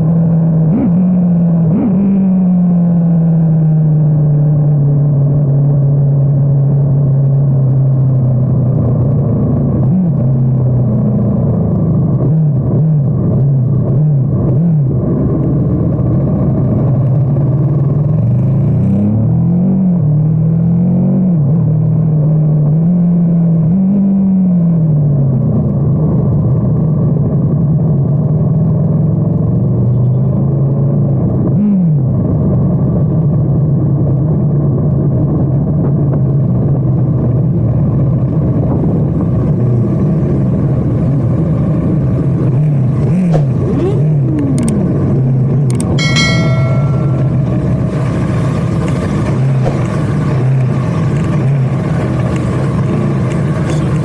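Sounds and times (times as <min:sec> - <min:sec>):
short high-pitched tone: 0:46.0 - 0:47.7.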